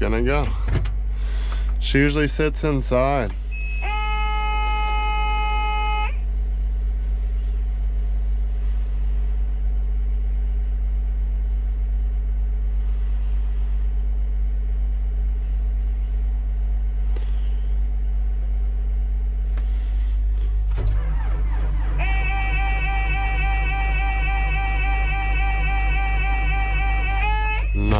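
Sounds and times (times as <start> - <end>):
diesel engine drone: 0.0 - 27.9.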